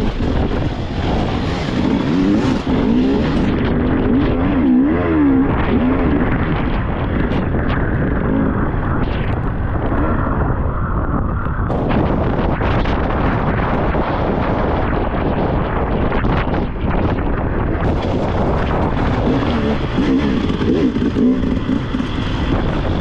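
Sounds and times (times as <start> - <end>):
motorcycle engine revving: 0.0 - 10.6, 17.7 - 23.0.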